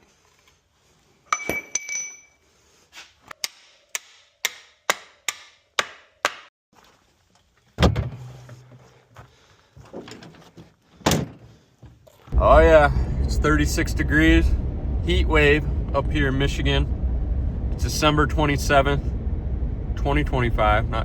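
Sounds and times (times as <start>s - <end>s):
ringing metallic clink: 1.3s - 2.4s.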